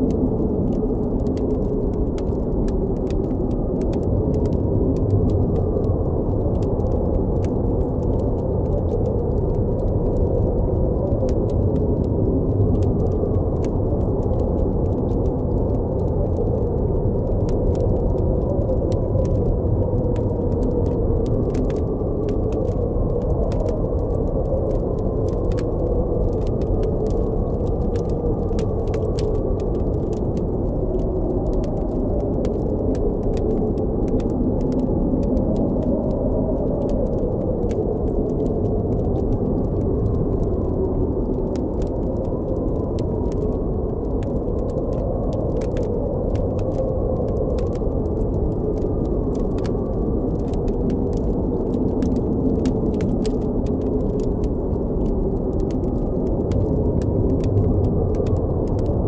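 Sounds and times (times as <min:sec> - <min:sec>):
campfire crackling: 0:00.0 - 0:59.0
howling blizzard wind: 0:00.0 - 0:59.0.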